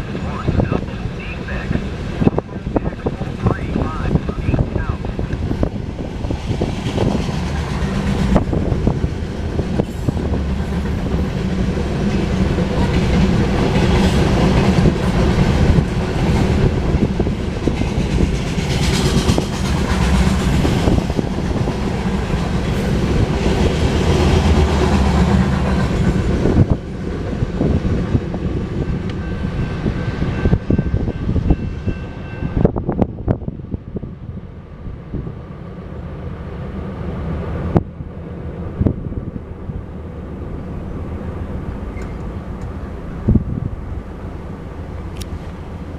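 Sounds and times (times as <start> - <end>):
train wheels clattering over rail joints: 6.3 - 26.9.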